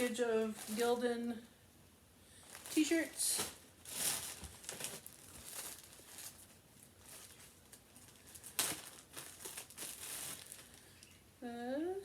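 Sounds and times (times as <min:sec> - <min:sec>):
plastic packaging rustling: 0:00.0 - 0:01.4, 0:02.4 - 0:11.2
clothing rustling: 0:02.4 - 0:10.9.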